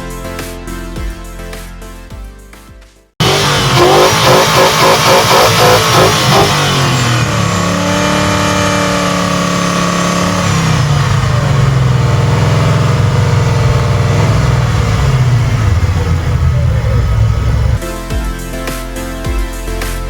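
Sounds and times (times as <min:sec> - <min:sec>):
car engine revving and idling: 0:03.2 - 0:17.8.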